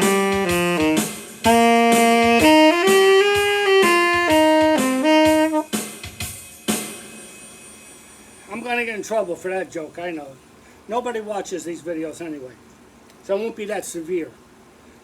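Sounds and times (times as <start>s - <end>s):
saxophone-toned lead melody: 0.0s - 5.8s
drums: 0.0s - 8.9s.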